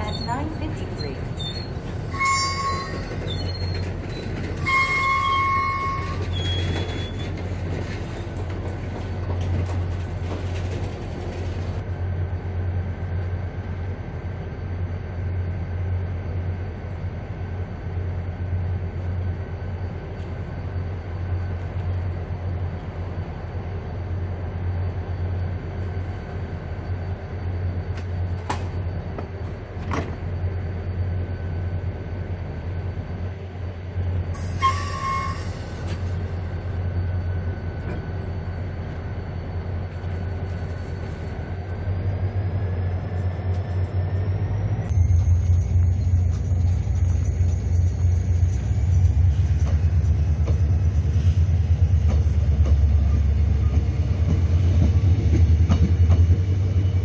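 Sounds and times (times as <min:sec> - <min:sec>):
train brake squeal: 0:00.0 - 0:08.4, 0:34.4 - 0:41.5
train humming at standstill: 0:00.0 - 0:57.0.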